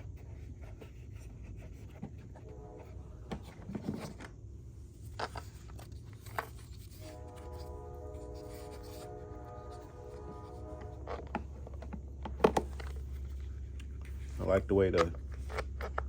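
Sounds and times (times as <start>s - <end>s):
plastic cover rubbing and scraping: 5.0s - 13.4s.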